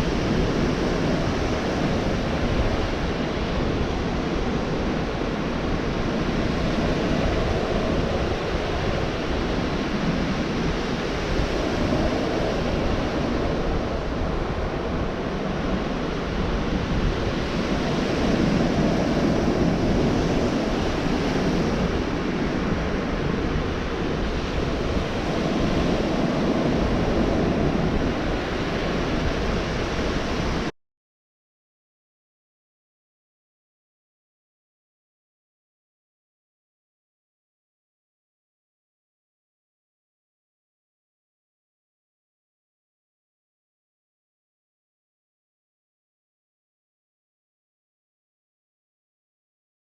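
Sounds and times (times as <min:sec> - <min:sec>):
ocean waves breaking: 0:00.0 - 0:30.7.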